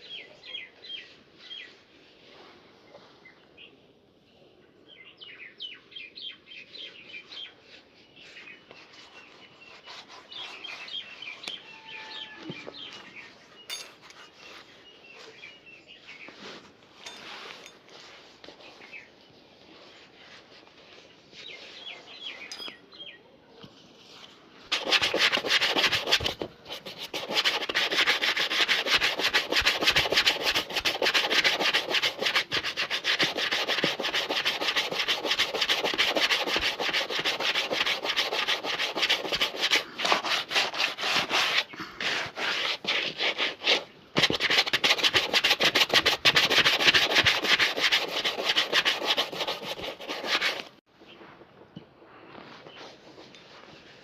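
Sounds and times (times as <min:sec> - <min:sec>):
shoe being rubbed to a shine: 0:07.4 - 0:11.4, 0:24.7 - 0:50.7.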